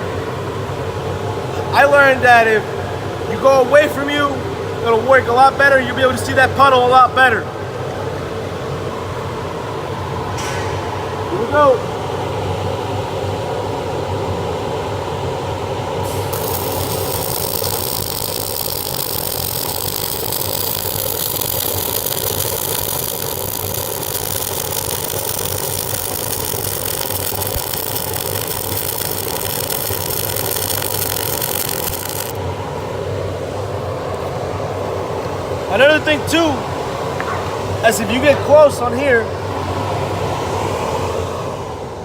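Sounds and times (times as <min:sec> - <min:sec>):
fume extractor running: 0:07.4 - 0:42.0
welding arc: 0:16.0 - 0:32.5.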